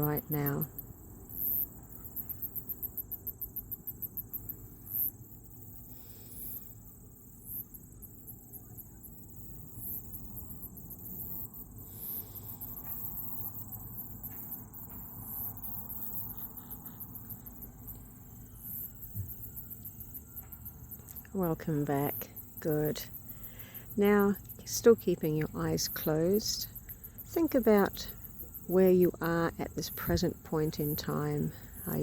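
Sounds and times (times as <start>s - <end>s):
high-pitched insects chirping: 0.0s - 32.0s.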